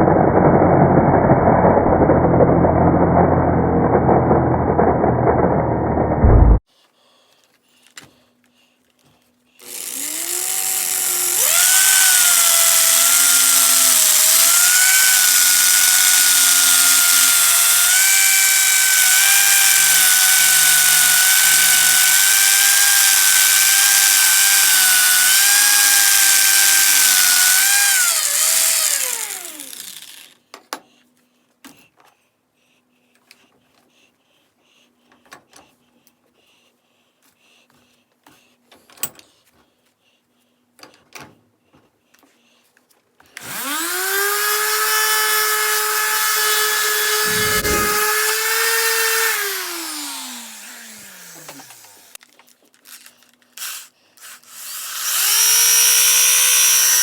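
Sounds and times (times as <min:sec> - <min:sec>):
electric motor whining: 0:09.6 - 0:30.3, 0:43.4 - 0:52.2, 0:54.5 - 0:57.0.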